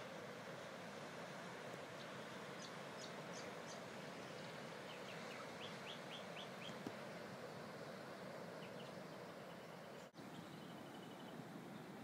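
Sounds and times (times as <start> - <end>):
distant surf: 0.0 - 12.0
small birds chirping: 1.8 - 12.0.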